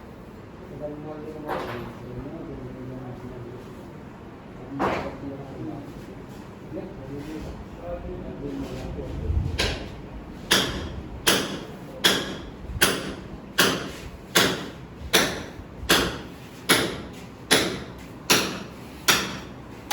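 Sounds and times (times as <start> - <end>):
sharp knocking: 10.5 - 19.5.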